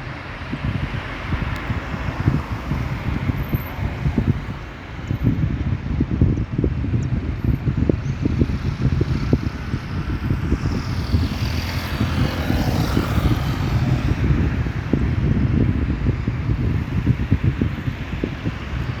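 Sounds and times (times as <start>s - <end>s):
wind buffeting microphone: 0.0s - 19.0s
airplane engine passing: 9.1s - 15.3s.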